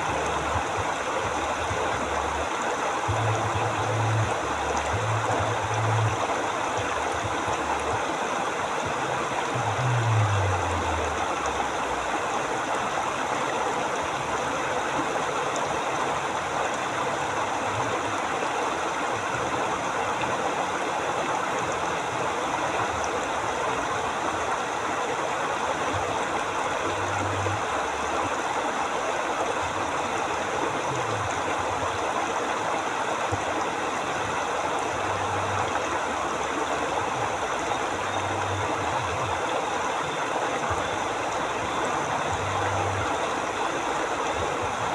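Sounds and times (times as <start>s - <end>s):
faint low hums: 0.0s - 8.2s, 8.8s - 12.4s
river water rushing: 0.0s - 44.9s.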